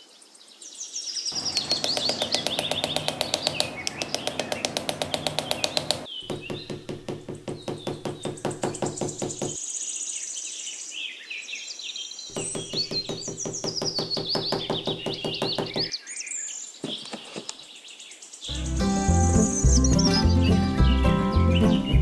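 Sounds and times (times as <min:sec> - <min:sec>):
birds chirping: 0:01.3 - 0:10.3, 0:12.0 - 0:22.0
hammer tapping on wooden post: 0:01.4 - 0:09.6, 0:12.3 - 0:15.9.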